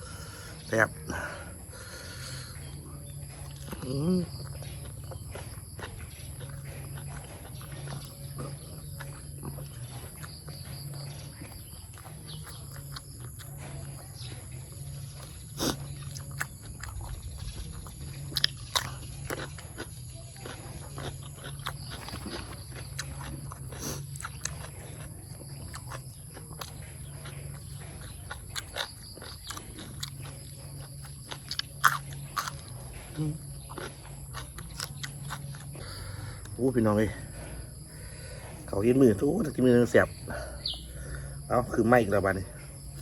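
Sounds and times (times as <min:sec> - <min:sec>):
person chewing: 0:00.0 - 0:43.0.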